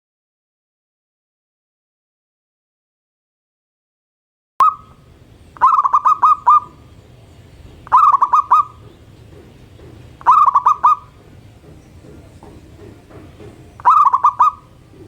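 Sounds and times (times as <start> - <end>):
dove cooing: 4.6 - 15.0.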